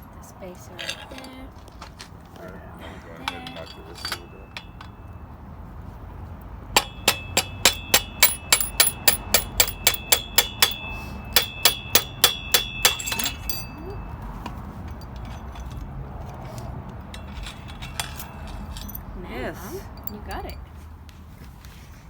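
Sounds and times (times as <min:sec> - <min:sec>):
hammer striking metal: 0:03.3 - 0:05.3, 0:06.8 - 0:15.7.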